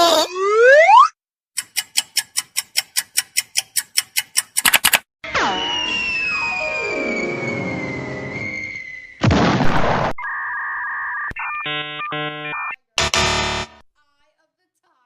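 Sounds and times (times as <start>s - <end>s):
cartoon explosion burst: 9.2s - 10.2s
stepped electronic beeping tones: 10.2s - 13.8s.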